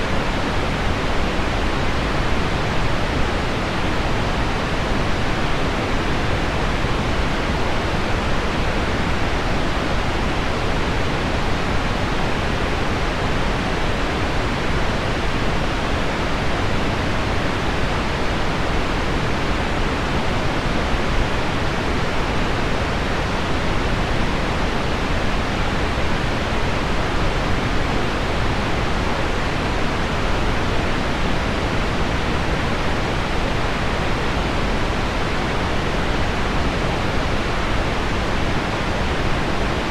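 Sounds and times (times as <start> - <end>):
pink noise: 0.0 - 39.9.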